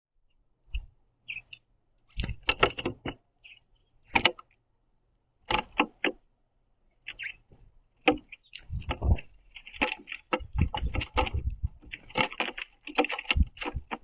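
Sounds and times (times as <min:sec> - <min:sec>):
birds knocking on wooden feeder: 0:02.2 - 0:03.3, 0:04.1 - 0:04.5, 0:05.4 - 0:06.2, 0:08.0 - 0:14.0.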